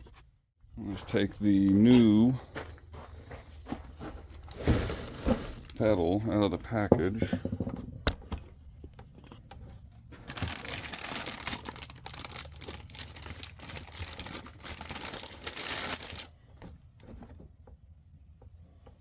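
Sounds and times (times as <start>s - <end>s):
packaging rustling and crackling: 4.4s - 5.9s, 10.0s - 16.4s.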